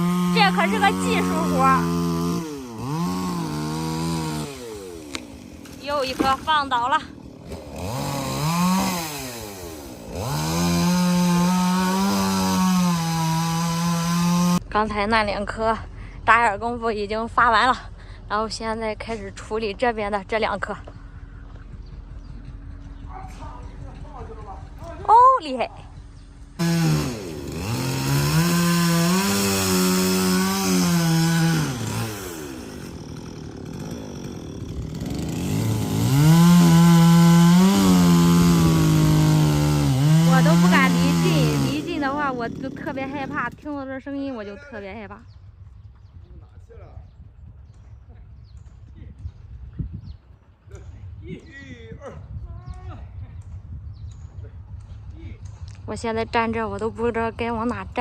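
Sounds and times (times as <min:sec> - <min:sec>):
chainsaw revving: 0:00.0 - 0:14.7, 0:26.6 - 0:43.8.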